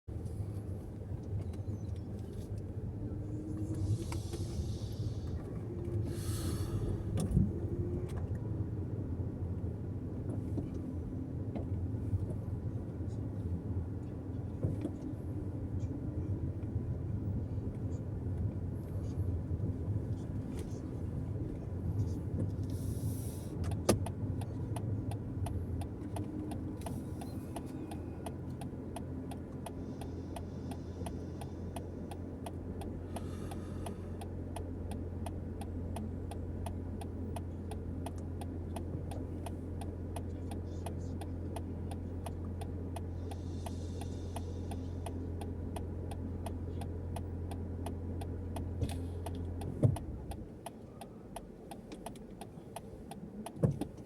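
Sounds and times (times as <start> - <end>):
car engine and tyres drone: 0.1 - 54.0
faint regular ticking: 21.5 - 54.0.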